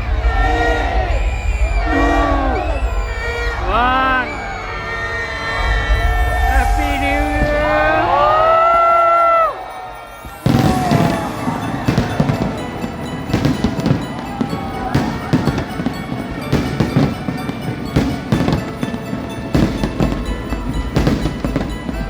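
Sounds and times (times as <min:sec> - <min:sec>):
firework crackle: 0:00.9 - 0:22.0
firework shells bursting: 0:08.6 - 0:22.0.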